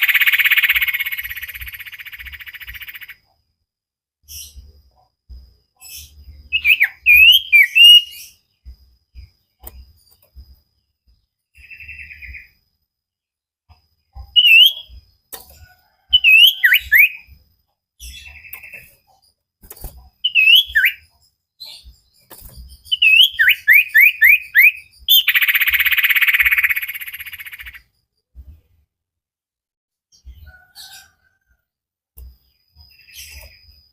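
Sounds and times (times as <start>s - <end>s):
harsh buzzy bird trill: 0.0s - 3.3s, 5.8s - 8.6s, 14.1s - 15.2s, 15.9s - 17.4s, 18.0s - 28.0s
songbird singing: 0.0s - 3.4s, 4.2s - 28.0s, 32.2s - 33.9s.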